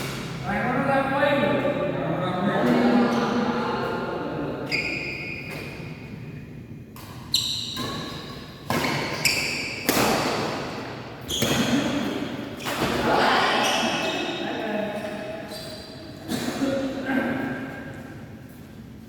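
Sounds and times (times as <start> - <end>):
badminton racket hitting shuttlecock: 7.0 - 13.1.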